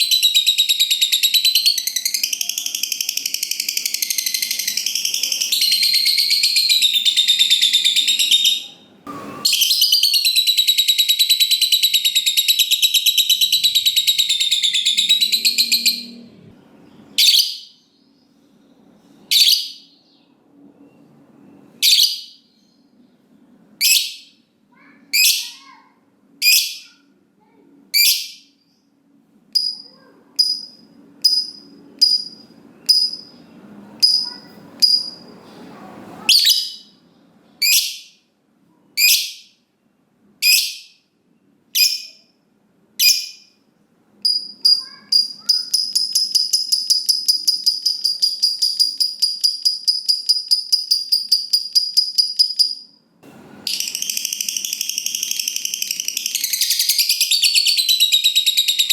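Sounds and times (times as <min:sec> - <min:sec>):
lovebird chattering trill: 0:00.0 - 0:08.8, 0:09.5 - 0:16.2, 0:41.8 - 0:42.3, 0:43.0 - 0:43.6, 0:44.2 - 0:52.9, 0:53.7 - 0:58.9.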